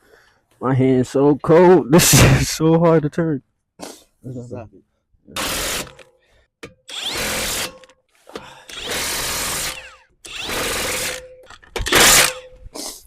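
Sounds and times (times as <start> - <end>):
power tool bursts: 5.4 - 6.1, 6.8 - 7.9, 8.6 - 12.5.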